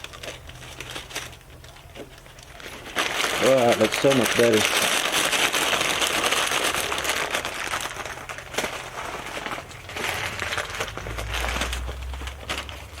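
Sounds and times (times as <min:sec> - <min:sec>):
material crinkling and crackling: 0:00.0 - 0:13.0
low steady rumble: 0:05.0 - 0:13.0.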